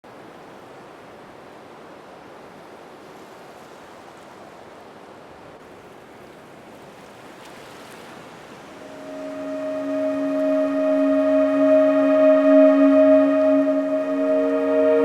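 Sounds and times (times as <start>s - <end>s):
sea waves washing in: 7.4s - 15.0s.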